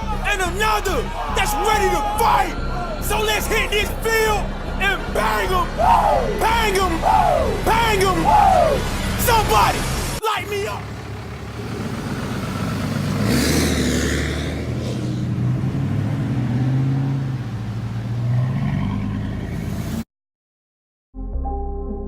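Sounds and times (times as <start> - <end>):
music: 0.0 - 9.9, 21.2 - 22.0
truck engine revving: 0.0 - 20.0.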